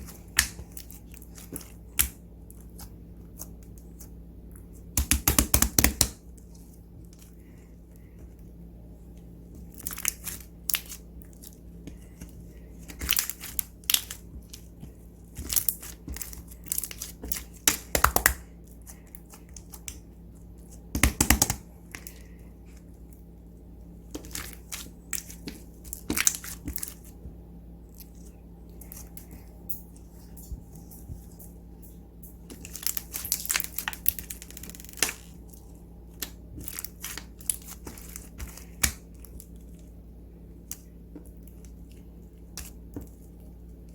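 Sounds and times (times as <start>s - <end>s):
slime crackling and popping: 12.9s - 14.7s, 15.3s - 20.0s, 24.1s - 27.0s, 32.5s - 39.6s.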